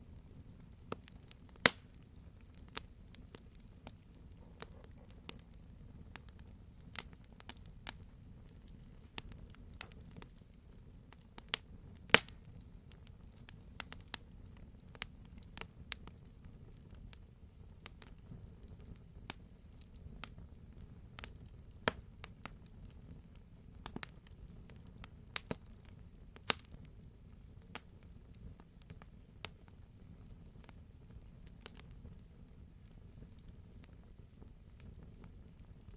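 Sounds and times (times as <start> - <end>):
campfire logs crackling: 0.1 - 35.9.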